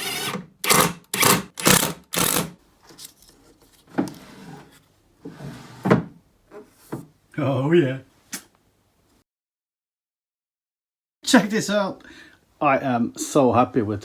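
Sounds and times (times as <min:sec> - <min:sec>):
wood scraping against wood: 0:02.8 - 0:07.1.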